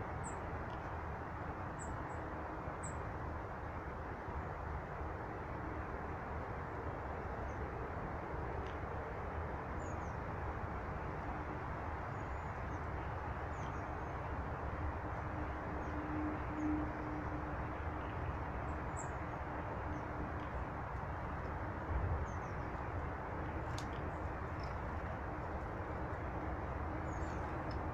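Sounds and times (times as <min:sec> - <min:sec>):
steady background rumble: 0:00.0 - 0:27.9
small birds chirping: 0:22.2 - 0:27.9.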